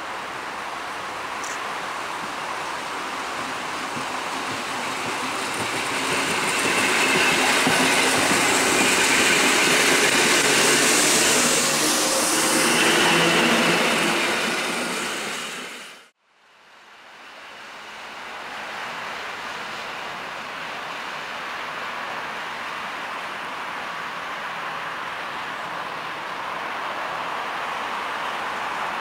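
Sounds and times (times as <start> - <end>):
train wheels running on rails: 1.3 - 16.1.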